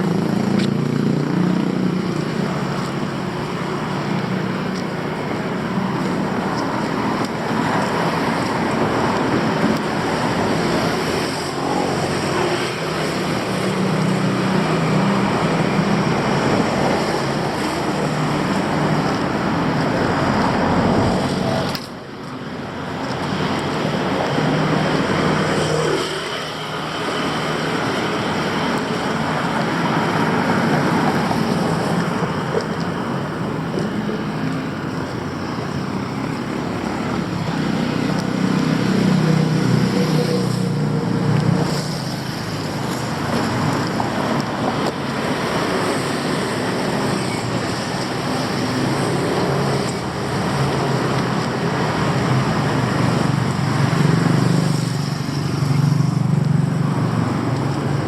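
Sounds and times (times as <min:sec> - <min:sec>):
passing vehicle engines: 0:00.0 - 0:58.0.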